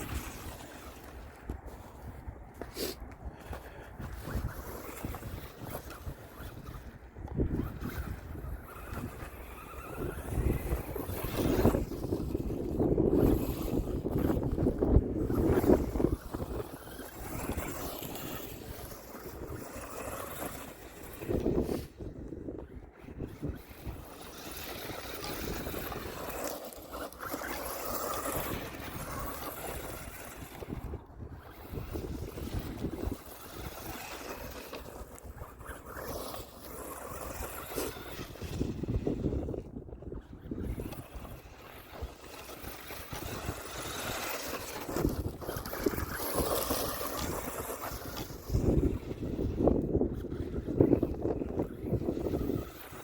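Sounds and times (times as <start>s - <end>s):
electric toy truck driving over dirt: 0.0s - 53.0s
wind on microphone: 0.0s - 53.0s.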